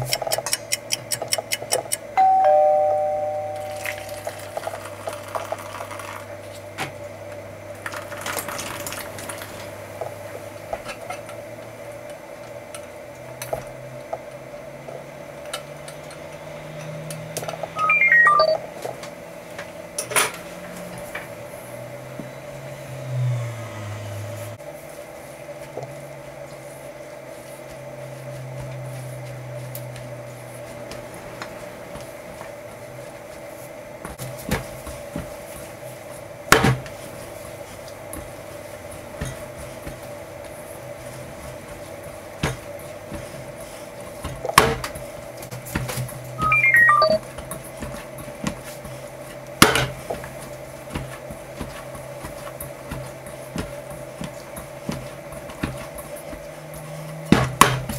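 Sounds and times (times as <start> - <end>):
hands kneading wet dough: 24.6 - 46.2, 47.2 - 57.9.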